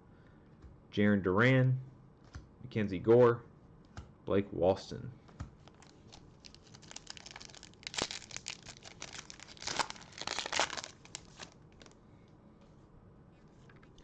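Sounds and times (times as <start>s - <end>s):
foil wrapper crinkling and tearing: 5.6s - 12.0s.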